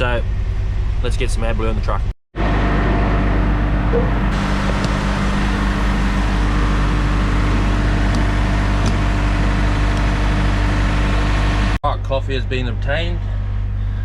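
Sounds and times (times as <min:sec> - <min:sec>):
diesel truck engine idling: 0:02.8 - 0:11.8.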